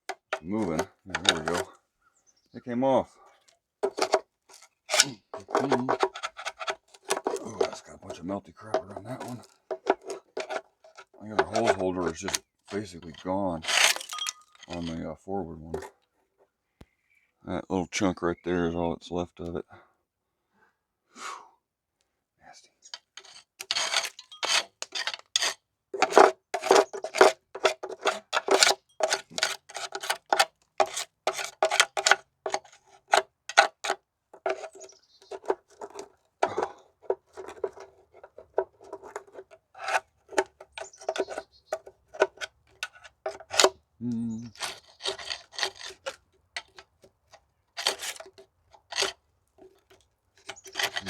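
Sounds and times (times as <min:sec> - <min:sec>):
tool scraping metal: 0:00.0 - 0:01.7, 0:03.8 - 0:15.0, 0:22.9 - 0:43.8, 0:44.4 - 0:47.0, 0:47.8 - 0:51.0.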